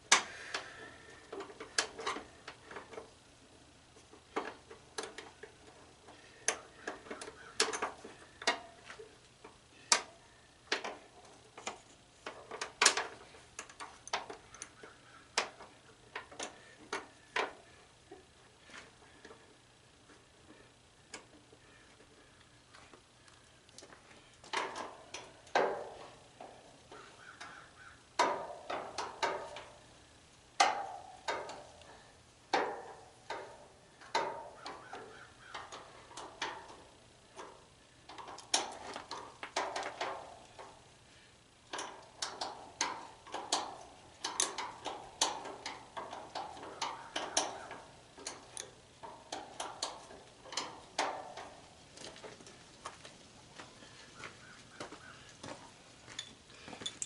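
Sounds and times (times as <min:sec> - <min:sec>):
hand tools clinking on metal: 0:56.1 - 0:57.0.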